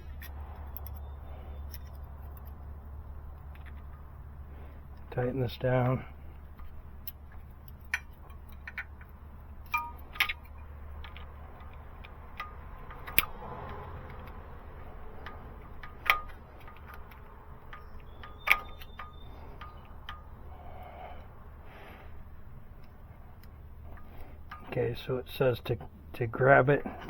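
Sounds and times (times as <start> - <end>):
low steady hum: 0.0 - 27.0
hand tools clinking on metal: 7.0 - 20.3.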